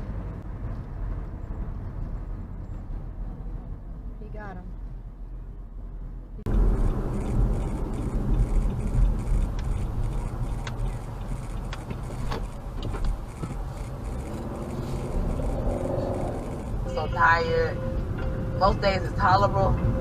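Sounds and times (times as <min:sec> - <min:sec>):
vehicle engine and road rumble: 0:00.0 - 0:20.0
clicks and rattles in cab: 0:07.9 - 0:14.4.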